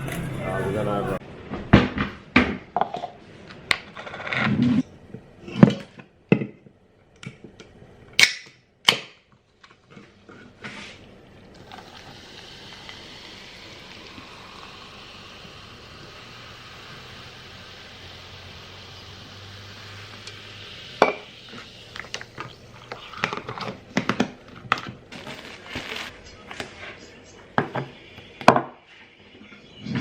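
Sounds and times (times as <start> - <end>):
steady hiss: 11.0 - 24.0.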